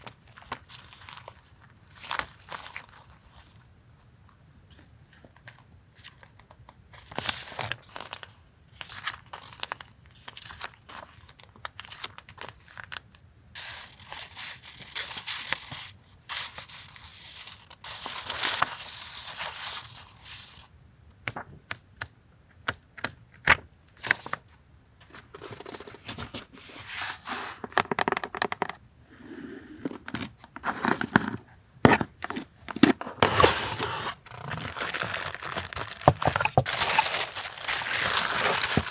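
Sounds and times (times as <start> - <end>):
paper crinkling and rustling: 0.0 - 3.6, 4.7 - 13.0, 13.7 - 20.7, 23.4 - 28.2, 32.1 - 38.9
paper tearing: 36.7 - 38.9.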